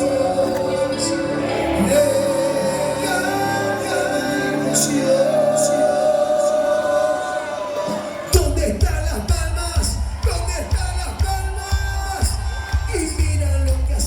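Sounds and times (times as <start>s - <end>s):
live band music: 0.0s - 14.0s.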